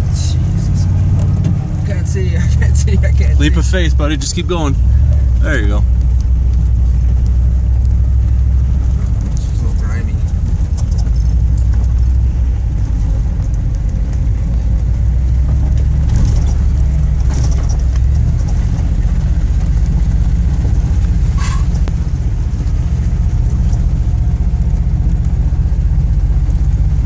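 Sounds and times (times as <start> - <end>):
car engine and road rumble: 0.0 - 27.0
knocks and rattles from bumps: 8.9 - 21.0.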